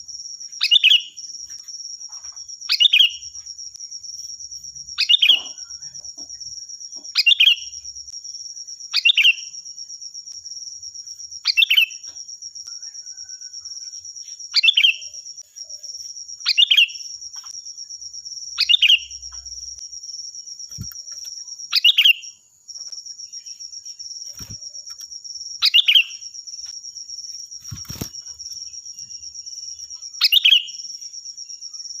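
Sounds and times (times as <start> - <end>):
high-pitched insect trill: 0.0 - 32.0
bulbul calling: 25.6 - 26.2.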